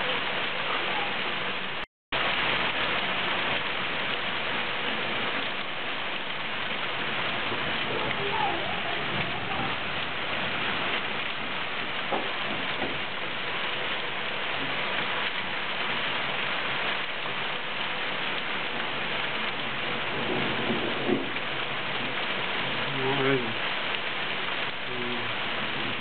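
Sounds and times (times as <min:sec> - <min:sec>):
rain and hail hitting ground: 0:00.0 - 0:26.0
hailstones ticking on car bonnet: 0:19.5 - 0:24.2.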